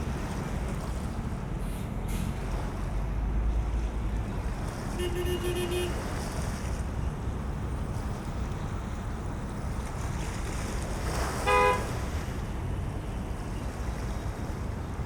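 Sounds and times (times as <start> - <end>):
short horn toot: 11.5 - 11.9.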